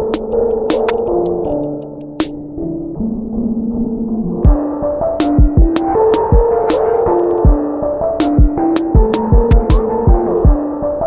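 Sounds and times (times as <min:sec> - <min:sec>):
electronic music: 0:00.0 - 0:11.0
kick drum: 0:04.4 - 0:06.5, 0:07.4 - 0:07.6, 0:08.4 - 0:10.6.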